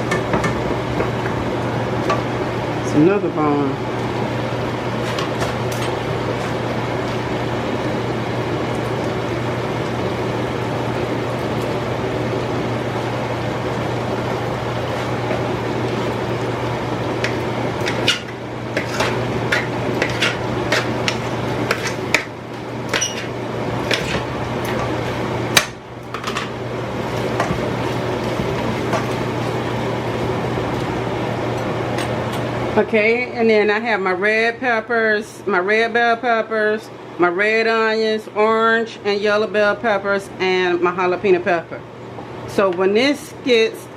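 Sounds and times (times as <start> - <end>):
utensils clinking against dishes: 22.9 - 24.2.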